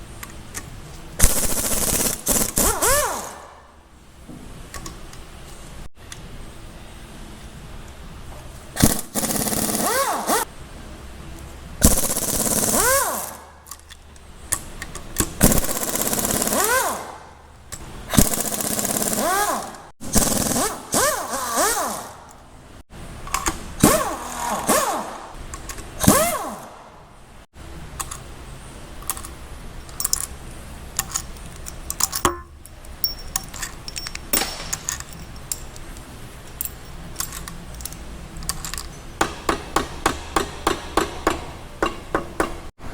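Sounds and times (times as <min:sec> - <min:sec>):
impact wrench bursts: 0:01.2 - 0:03.7, 0:08.8 - 0:10.5, 0:11.8 - 0:13.9, 0:14.6 - 0:17.5, 0:18.1 - 0:22.3, 0:23.3 - 0:26.9, 0:37.1 - 0:42.8.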